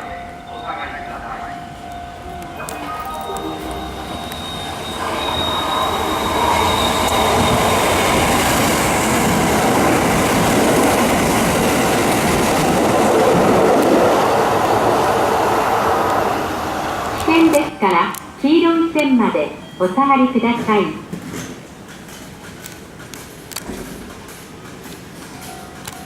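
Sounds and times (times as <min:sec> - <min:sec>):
electric train wheels rumbling: 0:00.0 - 0:19.0.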